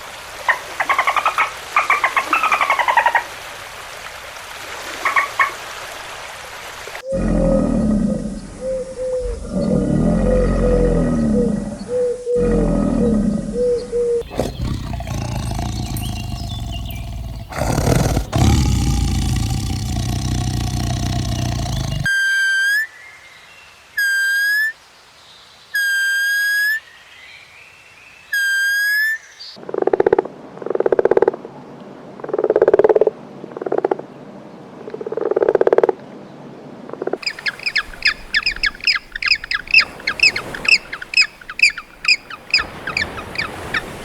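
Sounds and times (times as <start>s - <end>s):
low roaring animal calls: 7.0s - 22.1s
steady animal sound: 7.0s - 22.1s, 37.2s - 44.0s
high chirping animal calls: 13.6s - 22.1s, 37.2s - 44.0s.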